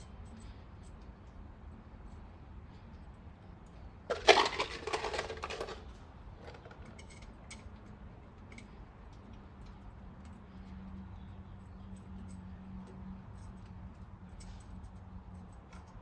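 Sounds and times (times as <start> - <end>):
metal tools clattering: 4.1 - 7.1.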